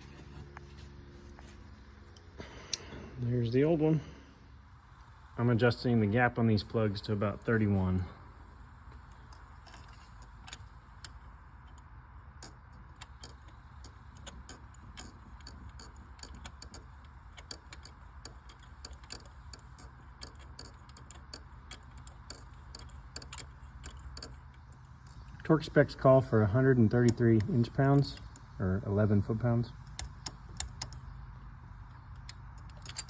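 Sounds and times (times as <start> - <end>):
low steady hum: 0.0 - 33.0
metallic clicks of hand tools: 9.1 - 25.7, 29.8 - 31.1, 32.1 - 33.0.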